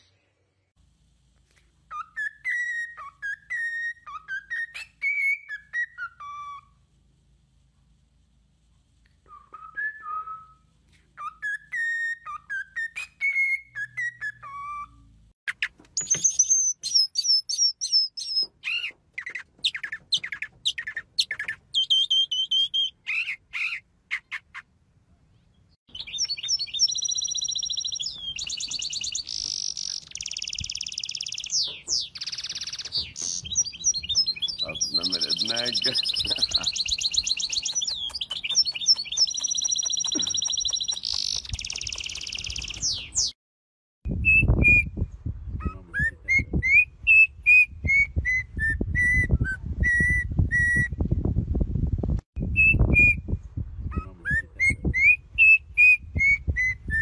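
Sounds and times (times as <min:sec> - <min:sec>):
songbirds singing: 0:11.2 - 0:43.4.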